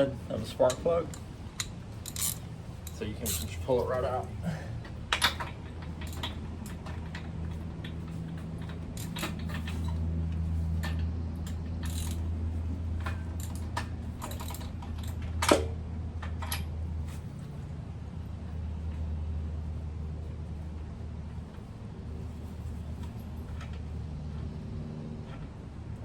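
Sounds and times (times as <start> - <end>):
steady low hum: 0.0 - 26.0
metallic clicks of wrench: 0.6 - 3.6, 10.8 - 12.3.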